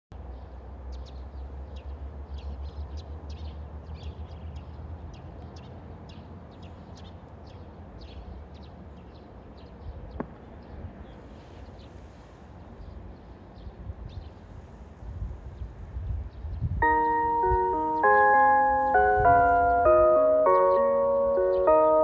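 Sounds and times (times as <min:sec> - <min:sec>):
wind rumble on microphone: 0:12.8 - 0:16.8
small birds chirping: 0:16.3 - 0:22.0.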